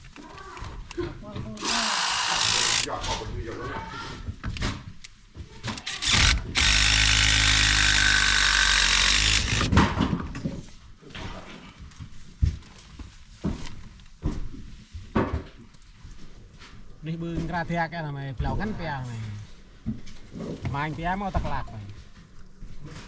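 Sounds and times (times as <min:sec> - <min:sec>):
power drill running: 0:01.6 - 0:03.0, 0:05.7 - 0:09.7.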